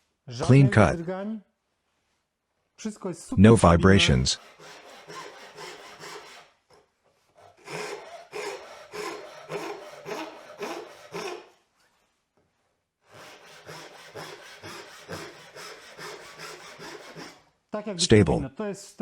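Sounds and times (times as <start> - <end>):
hand saw cutting wood: 4.4 - 11.6, 13.0 - 17.5.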